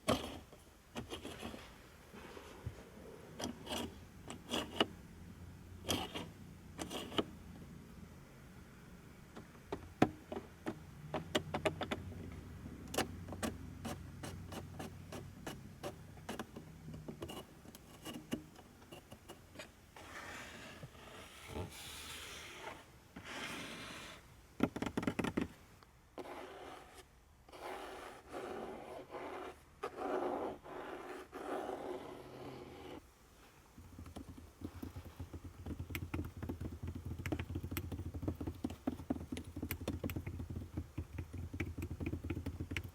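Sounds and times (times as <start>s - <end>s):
clicks ticks and scrapes: 3.4s - 4.9s, 5.8s - 7.3s, 12.9s - 19.8s, 33.8s - 42.9s.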